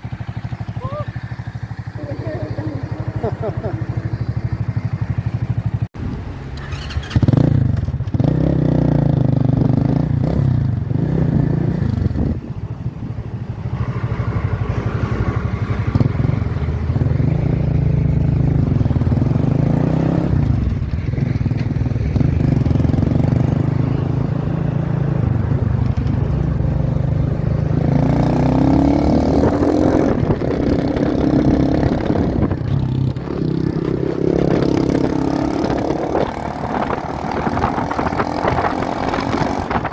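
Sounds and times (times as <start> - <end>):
motorcycle engine revving: 0.0 - 39.9
wind noise: 9.6 - 39.9.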